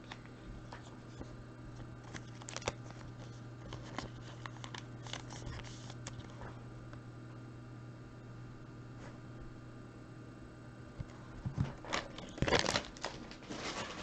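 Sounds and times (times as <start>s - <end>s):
trading cards being handled: 0.0s - 6.6s
low hum: 0.0s - 14.0s.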